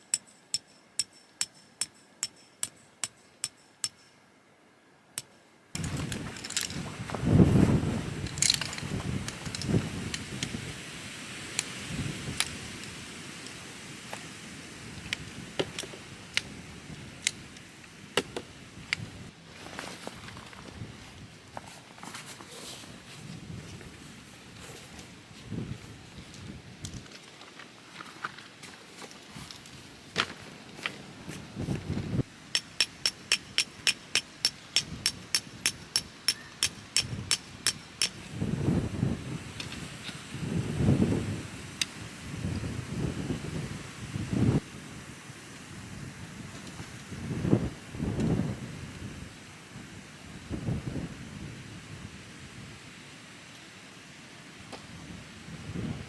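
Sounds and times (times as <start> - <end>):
steady background hiss: 0.0 - 56.0
hammer striking tent peg: 0.1 - 4.2, 32.5 - 38.2.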